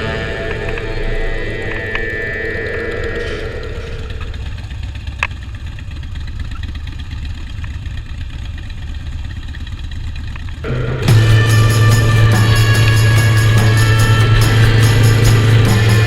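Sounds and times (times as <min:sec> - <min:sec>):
music with heavy bass: 0:00.0 - 0:04.1, 0:10.7 - 0:16.0
motorcycle engine rumbling: 0:00.0 - 0:16.0.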